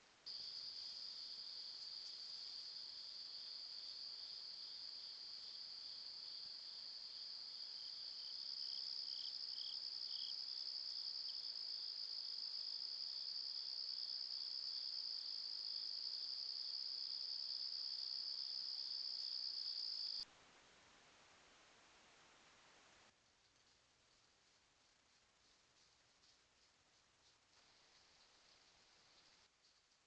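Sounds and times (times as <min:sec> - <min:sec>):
lower insect chirping: 0:00.3 - 0:20.2
insects trilling chorus: 0:12.6 - 0:20.2.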